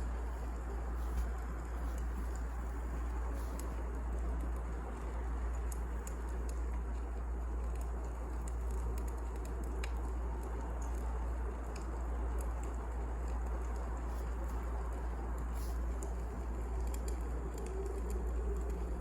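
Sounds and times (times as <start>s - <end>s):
burning logs rumbling and hissing: 0.0s - 19.0s
fire snaps and pops: 0.0s - 19.0s.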